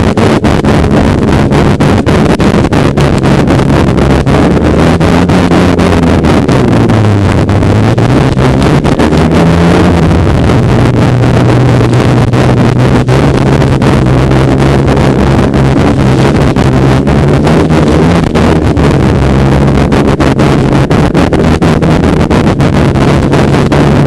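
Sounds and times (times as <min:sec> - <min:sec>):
crackles: 0:00.0 - 0:24.0
snowmobile engine running: 0:00.0 - 0:24.0.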